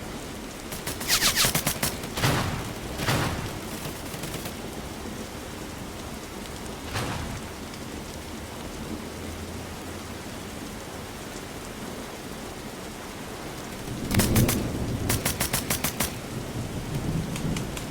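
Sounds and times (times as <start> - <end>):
airsoft gunfire: 0.7 - 4.8, 13.7 - 16.6
noisy rushes: 0.7 - 5.1, 6.6 - 8.2, 13.3 - 17.9
steady hiss: 13.3 - 17.9.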